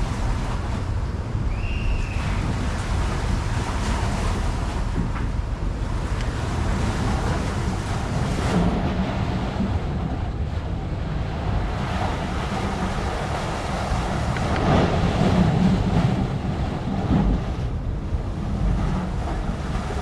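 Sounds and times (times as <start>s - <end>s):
water or surf wash: 0.0s - 20.0s
wind buffeting microphone: 0.0s - 20.0s.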